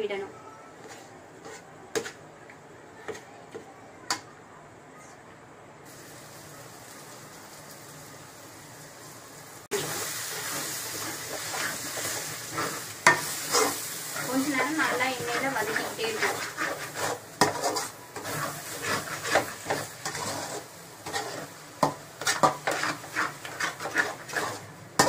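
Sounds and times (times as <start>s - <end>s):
spatula scraping and knocking: 0.8s - 2.2s, 11.0s - 25.0s
food sizzling in a pan: 5.9s - 25.0s.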